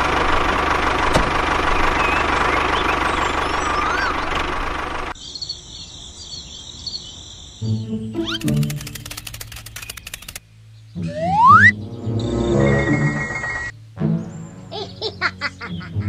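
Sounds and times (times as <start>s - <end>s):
small engine running: 0.0s - 5.2s, 8.2s - 10.4s
birds chirping: 0.0s - 16.0s.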